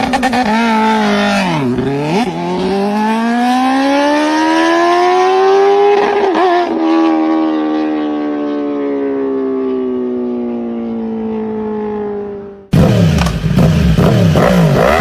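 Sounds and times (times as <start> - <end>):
motorcycle engine revving hard: 0.0 - 8.0, 12.7 - 15.0.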